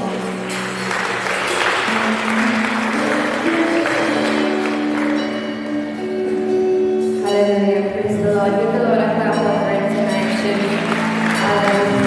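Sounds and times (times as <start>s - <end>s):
congregation applauding: 0.0s - 6.0s, 10.1s - 12.0s
instrumental music sustained notes: 0.0s - 12.0s.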